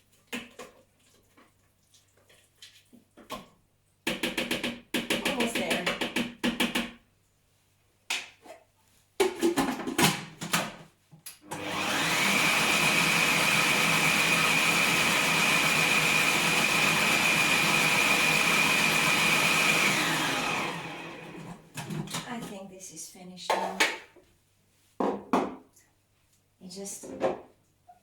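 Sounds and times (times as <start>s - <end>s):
food processor motor whining: 11.4s - 21.9s.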